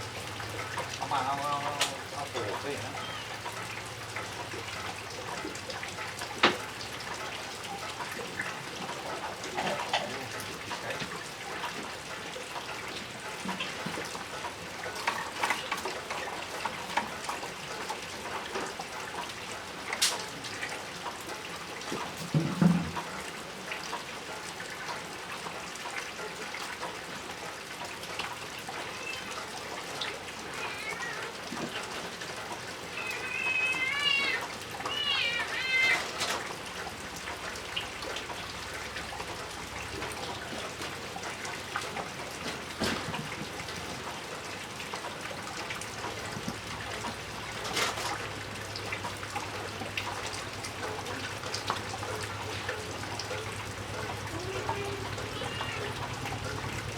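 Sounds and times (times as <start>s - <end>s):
water running: 0.0s - 56.9s
high-pitched animal calls: 2.9s - 3.5s, 32.9s - 36.1s, 54.3s - 56.1s.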